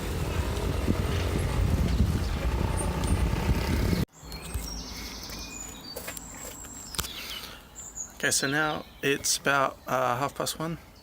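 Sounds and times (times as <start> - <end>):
loud low rumbling: 0.0 - 4.1
birds chirping: 0.0 - 11.0.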